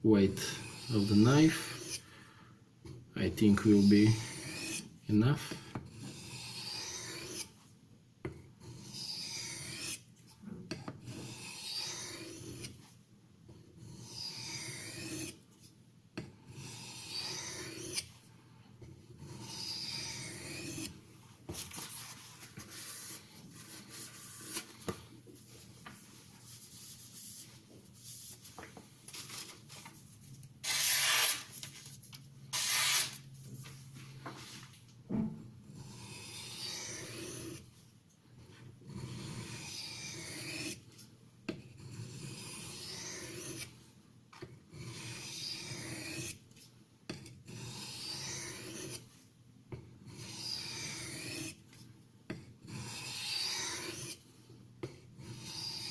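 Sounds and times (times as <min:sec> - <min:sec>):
knife scraping on whetstone: 0:00.4 - 0:02.0, 0:03.6 - 0:04.9, 0:05.9 - 0:07.6, 0:08.6 - 0:10.0, 0:11.0 - 0:12.8, 0:13.8 - 0:15.4, 0:16.5 - 0:18.1, 0:19.2 - 0:24.9, 0:30.6 - 0:31.5, 0:32.6 - 0:33.2, 0:35.8 - 0:37.7, 0:38.9 - 0:40.8, 0:41.6 - 0:43.8, 0:44.7 - 0:46.4, 0:47.1 - 0:49.1, 0:50.1 - 0:51.6, 0:52.6 - 0:54.2, 0:54.9 - 0:55.9.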